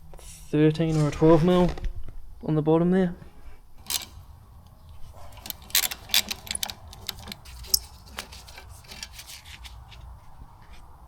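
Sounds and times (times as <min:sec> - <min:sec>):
metal rubbing and scraping: 0:03.8 - 0:10.8.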